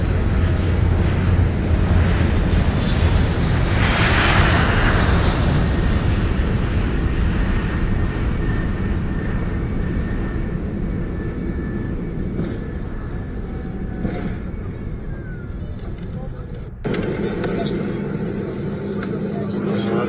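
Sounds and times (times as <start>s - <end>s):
aircraft engine and rolling rumble: 0.0s - 20.0s.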